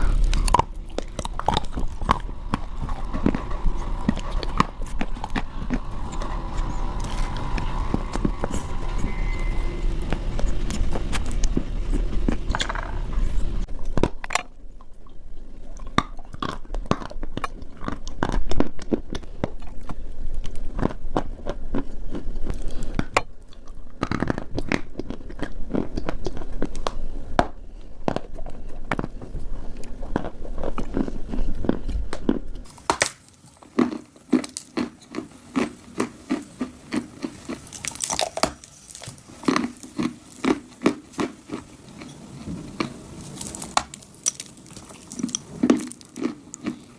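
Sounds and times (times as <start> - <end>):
clay being chewed and crunched: 15.7 - 46.9.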